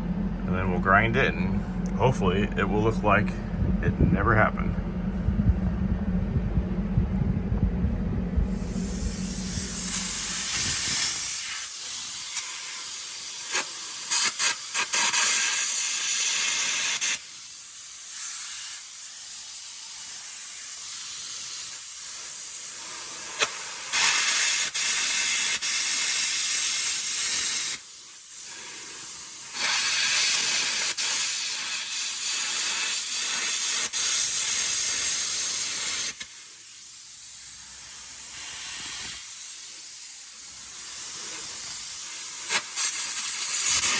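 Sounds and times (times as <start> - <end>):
electric arc crackling: 8.4 - 17.3, 22.9 - 27.8, 29.4 - 36.4, 38.2 - 43.9
compressed air jet hissing: 8.4 - 43.9.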